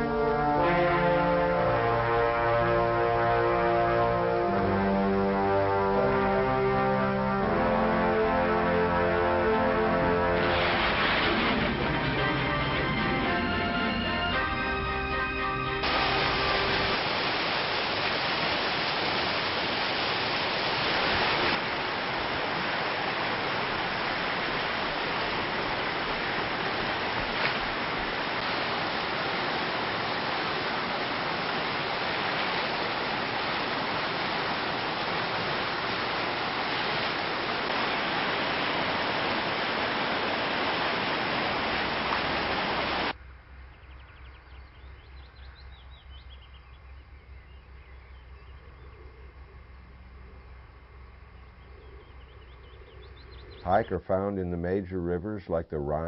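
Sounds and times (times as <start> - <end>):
rushing water: 0.0 - 14.6, 15.2 - 43.2
faint bird chirping: 43.5 - 54.8.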